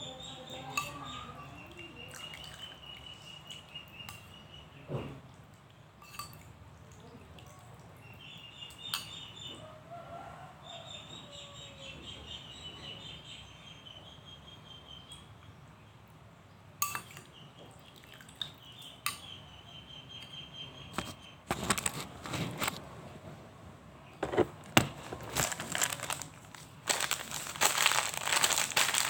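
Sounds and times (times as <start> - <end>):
faint birds chirping: 0.0 - 6.0, 6.7 - 21.9, 23.8 - 29.0
utensil clinking against dish: 0.6 - 1.2, 6.0 - 6.5, 16.8 - 17.3, 19.0 - 19.3
clattering and crinkling: 21.0 - 22.8, 24.2 - 29.0.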